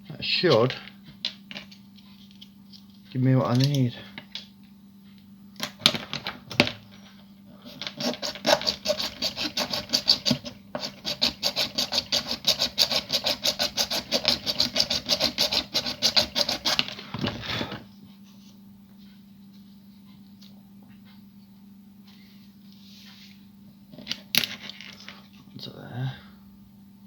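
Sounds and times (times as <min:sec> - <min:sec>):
hand tool scraping model part: 0:07.6 - 0:16.9.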